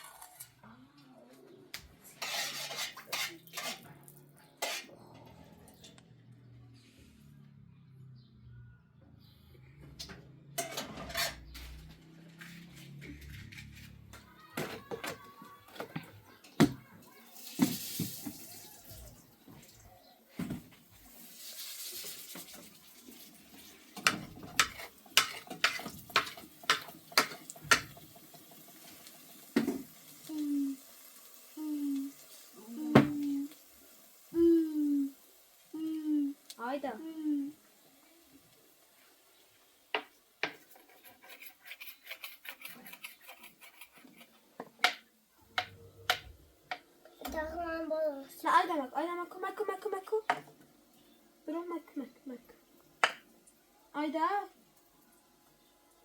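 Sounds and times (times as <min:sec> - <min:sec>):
dishes and cutlery clinking: 0:02.2 - 0:03.9, 0:04.5 - 0:05.9, 0:10.6 - 0:11.8, 0:24.0 - 0:28.0
water pouring: 0:17.3 - 0:19.8, 0:21.0 - 0:24.0.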